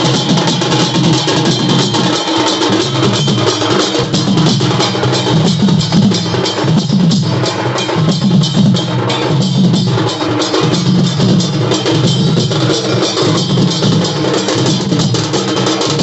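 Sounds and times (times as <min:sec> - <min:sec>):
loud fast drumming music: 0:00.0 - 0:16.0.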